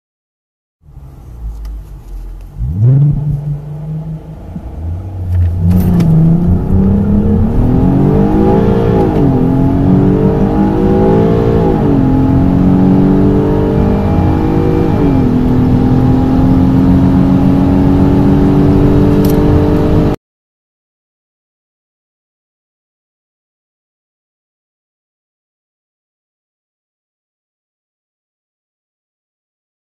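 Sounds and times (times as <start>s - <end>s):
car engine accelerating hard: 0.9s - 20.2s.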